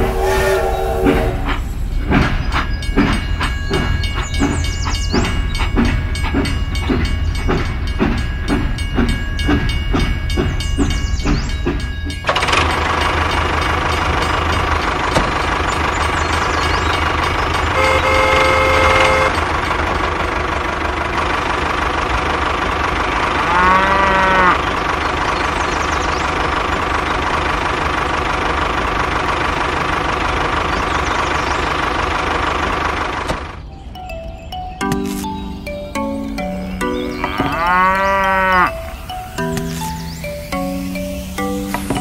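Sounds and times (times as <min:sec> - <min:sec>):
horn-like tone: 0:00.0 - 0:01.6, 0:17.7 - 0:19.4
engine humming: 0:00.0 - 0:42.0
cow mooing: 0:23.3 - 0:24.7, 0:37.1 - 0:38.9.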